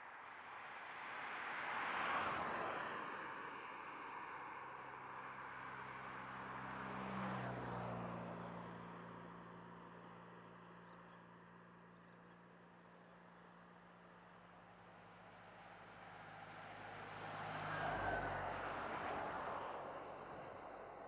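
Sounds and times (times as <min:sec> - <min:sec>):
vehicle passing: 0:16.3 - 0:19.4.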